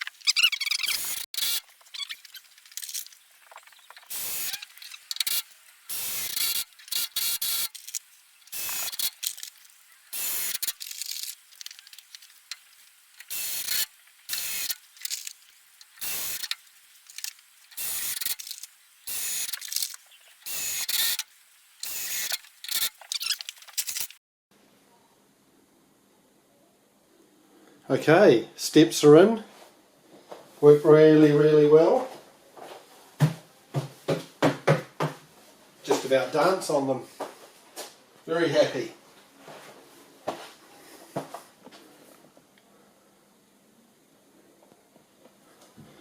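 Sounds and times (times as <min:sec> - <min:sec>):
cordless drill driving screws: 0:00.4 - 0:01.6, 0:04.1 - 0:09.4, 0:10.2 - 0:10.8, 0:21.8 - 0:24.1.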